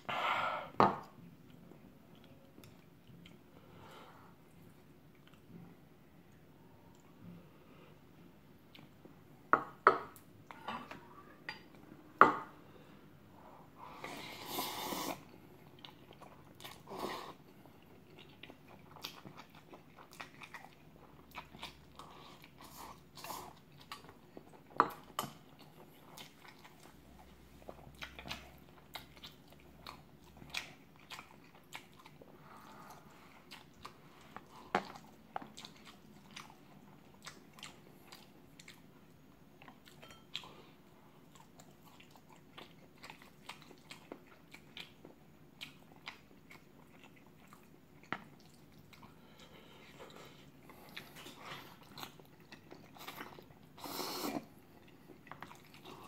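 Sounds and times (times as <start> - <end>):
wet chewing: 17.5 - 38.9, 41.3 - 56.0.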